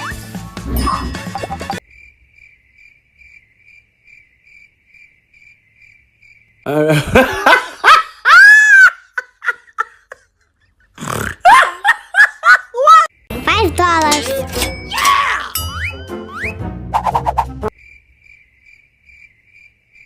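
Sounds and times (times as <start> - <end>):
faint cricket chirping: 1.8 - 6.8, 17.7 - 20.0.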